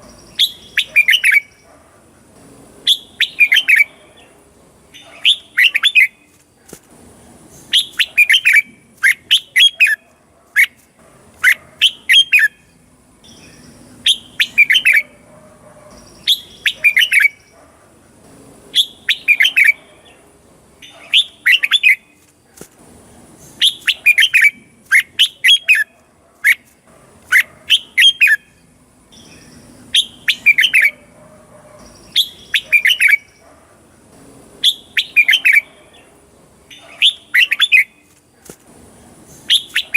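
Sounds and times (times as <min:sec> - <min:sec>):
bird singing bright notes: 0:00.0 - 0:01.7, 0:02.9 - 0:04.3, 0:11.4 - 0:15.2, 0:15.9 - 0:17.6, 0:27.3 - 0:31.1, 0:31.8 - 0:33.4.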